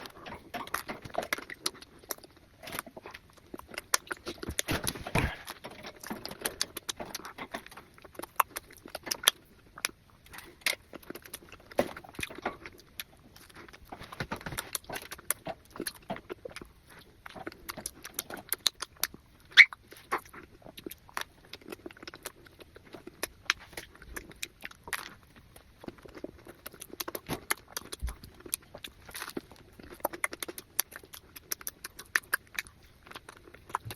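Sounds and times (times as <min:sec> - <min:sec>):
person chewing and smacking: 0:00.0 - 0:33.9.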